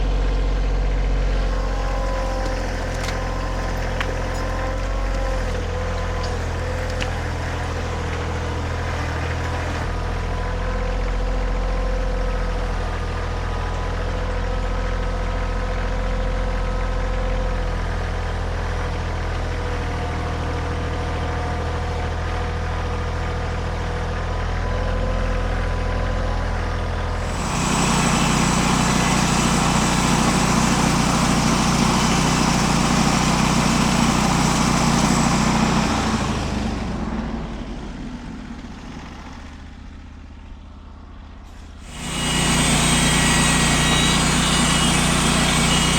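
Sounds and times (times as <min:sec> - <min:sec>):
engine running: 0:00.0 - 0:10.4, 0:27.0 - 0:45.9.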